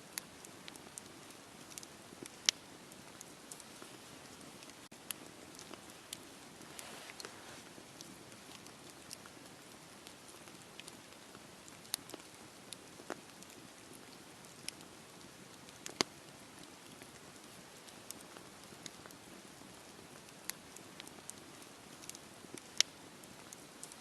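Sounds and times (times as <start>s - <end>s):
wood fire crackling and popping: 0.0s - 24.0s
fire hissing: 5.2s - 8.7s.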